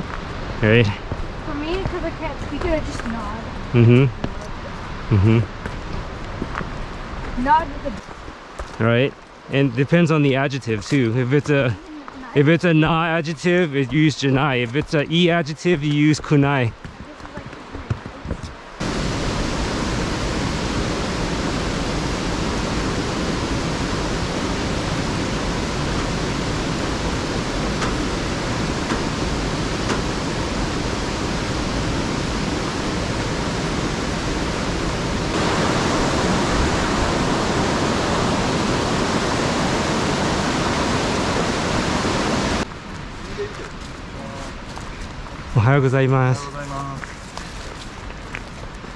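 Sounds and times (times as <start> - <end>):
waterfall rushing: 18.8 - 42.7.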